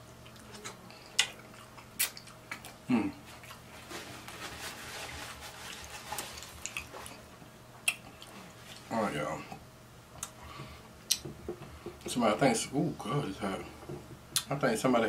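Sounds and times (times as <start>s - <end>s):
soft chewing: 0.0s - 4.4s, 5.0s - 9.6s.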